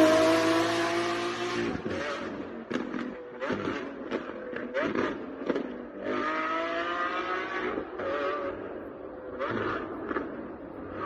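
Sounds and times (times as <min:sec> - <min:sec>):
sports car engine revving: 0:00.0 - 0:08.6.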